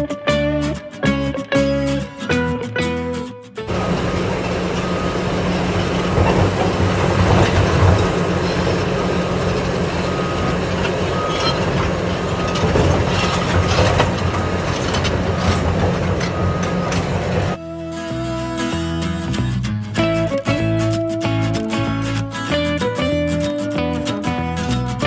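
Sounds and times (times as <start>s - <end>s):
diesel engine running under load: 3.6s - 17.6s.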